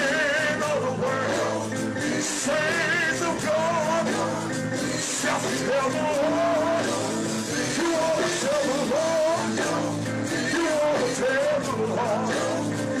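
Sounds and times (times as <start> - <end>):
live gospel music: 0.0 - 13.0.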